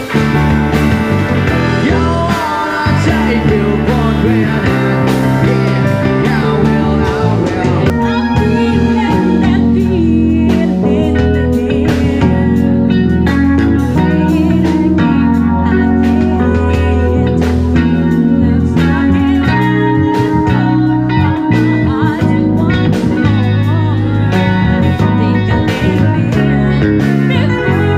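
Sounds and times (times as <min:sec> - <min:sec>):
bass: 0:00.0 - 0:27.9
electric guitar lead line: 0:00.0 - 0:27.9.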